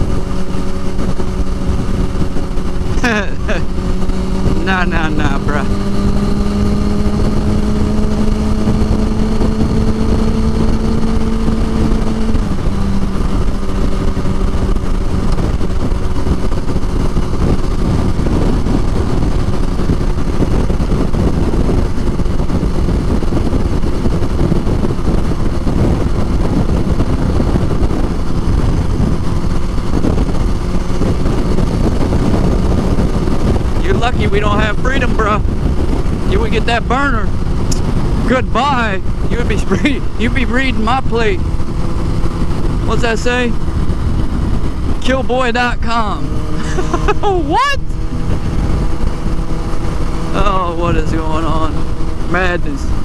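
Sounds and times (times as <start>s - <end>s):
motorcycle engine running: 0.0s - 53.0s
road and wind noise: 0.0s - 53.0s.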